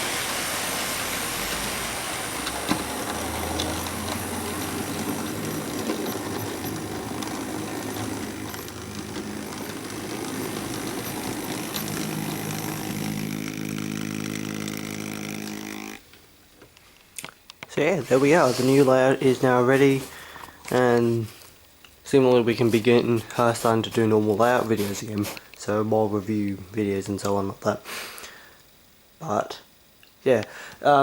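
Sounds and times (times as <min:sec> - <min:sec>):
model train motor whirring: 0:00.0 - 0:16.1
steady hum: 0:00.0 - 0:31.0.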